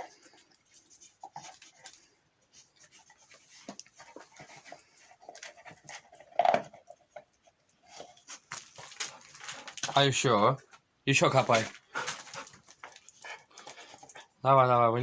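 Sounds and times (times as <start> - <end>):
dog panting: 0.0 - 6.2, 11.8 - 14.4.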